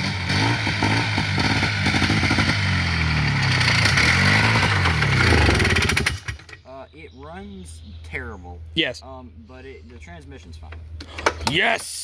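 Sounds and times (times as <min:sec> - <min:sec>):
atv engine revving: 0:00.0 - 0:06.8.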